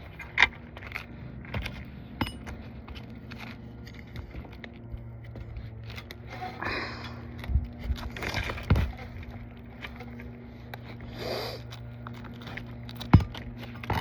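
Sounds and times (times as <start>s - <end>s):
roofing tool scraping shingles: 0.0s - 14.0s
steady low hum: 0.0s - 14.0s.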